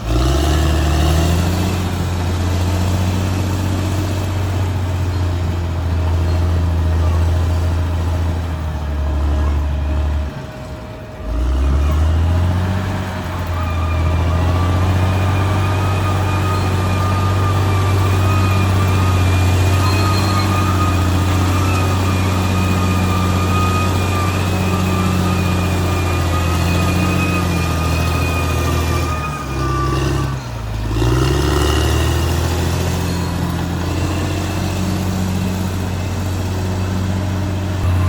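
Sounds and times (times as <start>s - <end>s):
bulldozer diesel engine running: 0.0s - 38.0s
high-pitched whine: 13.5s - 30.9s.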